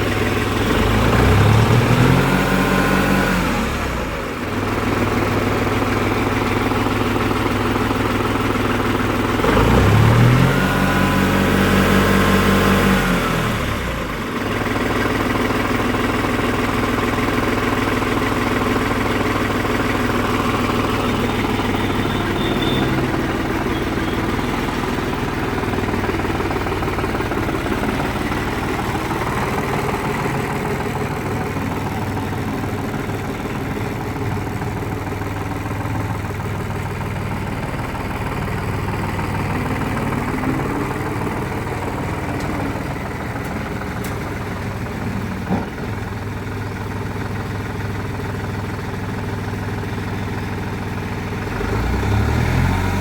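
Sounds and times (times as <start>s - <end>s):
tractor diesel engine idling: 0.0s - 53.0s.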